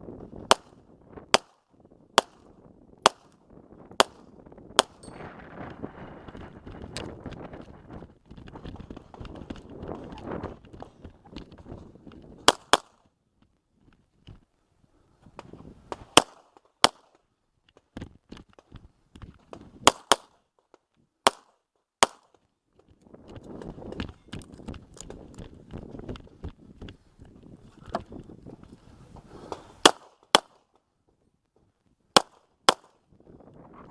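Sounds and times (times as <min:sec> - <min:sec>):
handgun shots: 0:04.8 - 0:05.1, 0:12.5 - 0:12.9, 0:16.2 - 0:17.1, 0:21.2 - 0:22.3
quick irregular footsteps: 0:05.7 - 0:14.5.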